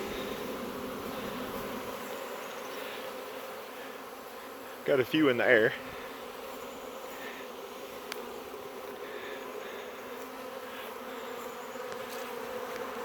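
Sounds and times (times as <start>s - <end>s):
bee swarm buzzing: 0.0s - 13.0s
faint ticks: 8.0s - 8.3s, 11.4s - 12.9s.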